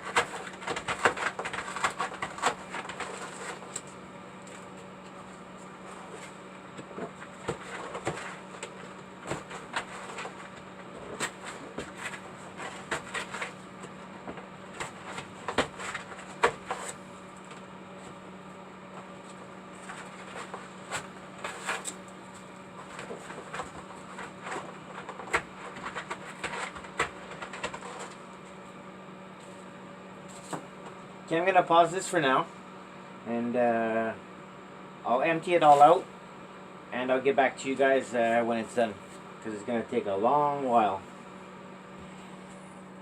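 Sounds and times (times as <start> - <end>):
scraping and clicking of digging: 0.0 - 4.6, 19.8 - 22.0, 22.8 - 28.2
electrical hum: 0.0 - 43.0.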